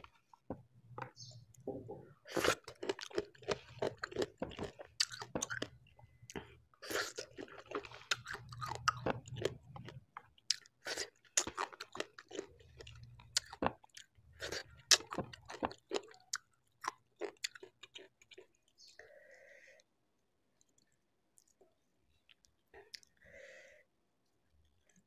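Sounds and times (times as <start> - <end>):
close chewing with crunches: 2.2 - 19.0.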